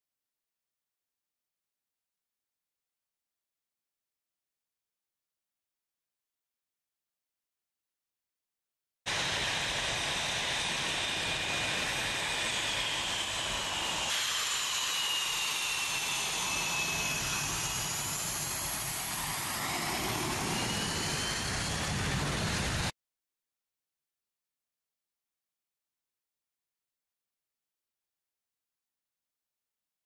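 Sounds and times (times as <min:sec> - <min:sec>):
jet fighter engines whining: 0:09.1 - 0:22.9.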